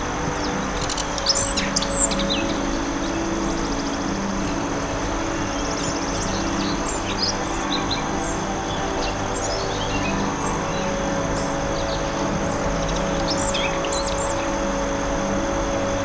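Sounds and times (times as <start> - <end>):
birds chirping: 0.0 - 16.0
steady rushing background: 0.0 - 16.0.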